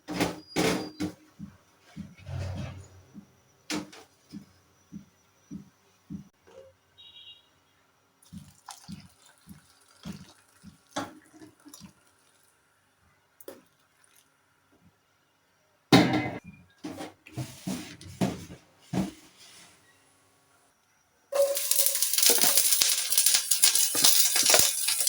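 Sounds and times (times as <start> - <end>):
water dripping and splashing in sink: 8.2 - 12.6, 13.4 - 14.4.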